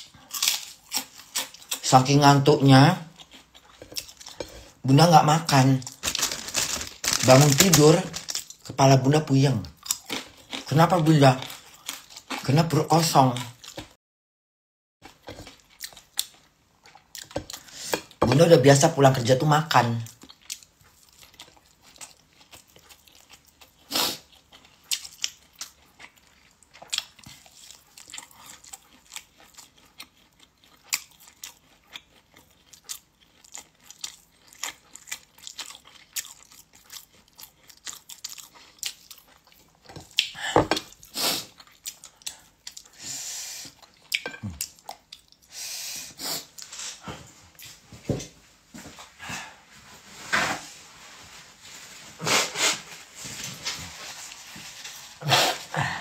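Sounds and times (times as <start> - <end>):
person chewing with wet smacks: 3.0 - 4.8, 15.0 - 18.2, 20.0 - 43.0, 43.6 - 45.5.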